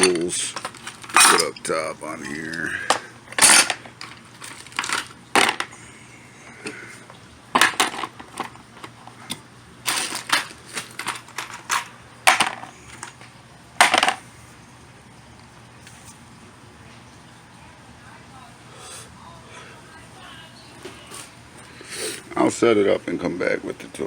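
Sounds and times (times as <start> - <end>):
metal tools clinking into tray: 0.0 - 1.7, 9.9 - 13.1.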